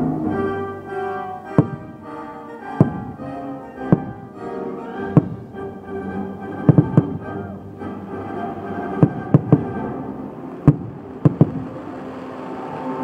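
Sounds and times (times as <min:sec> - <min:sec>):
orchestral music: 0:00.0 - 0:13.0
fireworks bursting: 0:01.2 - 0:13.0.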